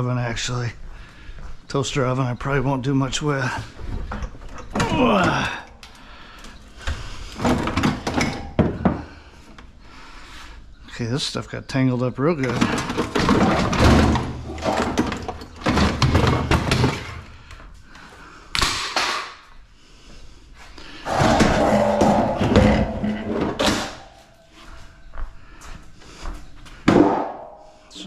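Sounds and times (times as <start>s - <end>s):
scrap appliances knocking and rattling: 6.8s - 9.3s, 12.4s - 17.4s, 21.0s - 24.2s, 26.8s - 28.0s.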